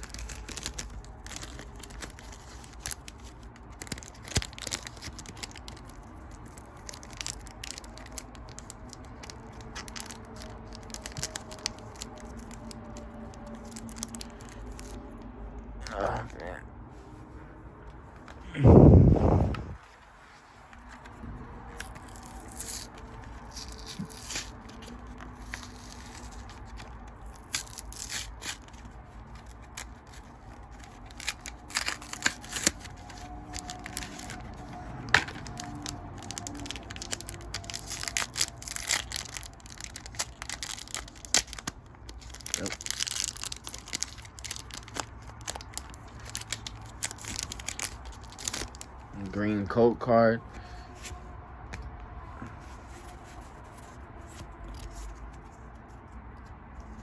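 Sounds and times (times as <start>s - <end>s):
cards being handled: 0.0s - 15.2s, 19.5s - 48.9s, 50.5s - 57.0s
foil wrappers tearing and crinkling: 0.0s - 15.2s, 21.8s - 49.1s.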